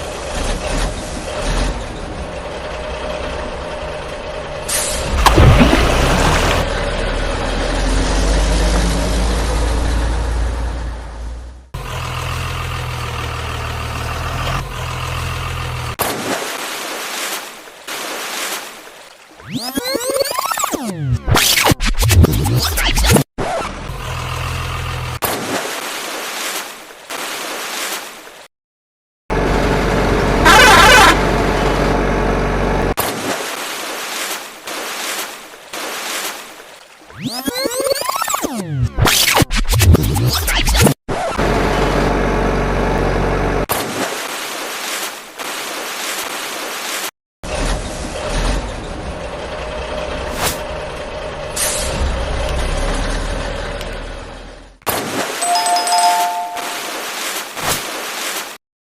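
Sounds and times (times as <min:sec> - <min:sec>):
heavy vehicle engine running: 0:00.0 - 0:16.0, 0:23.7 - 0:25.2, 0:29.3 - 0:33.0, 0:41.4 - 0:43.7, 0:47.5 - 0:54.8.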